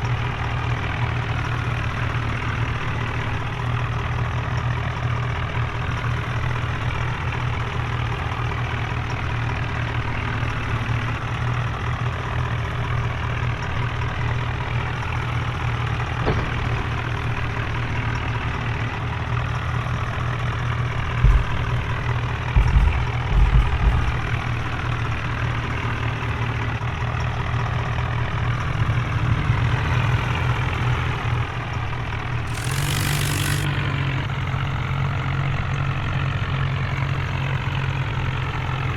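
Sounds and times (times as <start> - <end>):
tractor diesel engines droning: 0.0 - 23.4, 24.1 - 38.9
low thumps: 21.2 - 24.4, 32.5 - 33.8
short hiss: 32.5 - 33.8.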